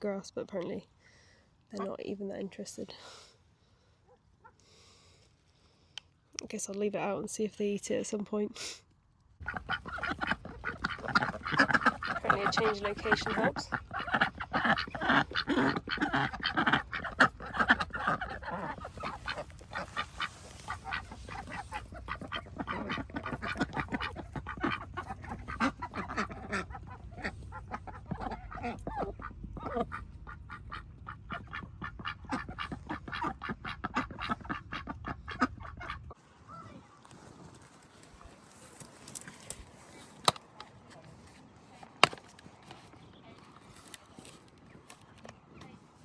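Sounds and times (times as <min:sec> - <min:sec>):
bills clicking nibbling grass: 0:09.4 - 0:32.8
ducks quacking: 0:09.4 - 0:36.2.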